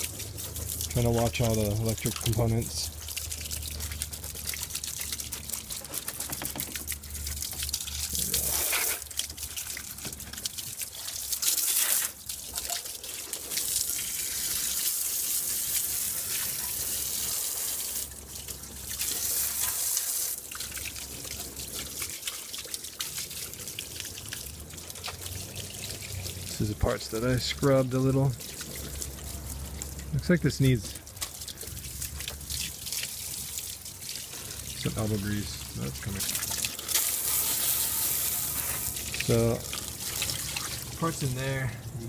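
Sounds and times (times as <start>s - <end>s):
water spray hissing: 8.1s - 9.2s, 11.6s - 12.2s, 36.1s - 40.8s.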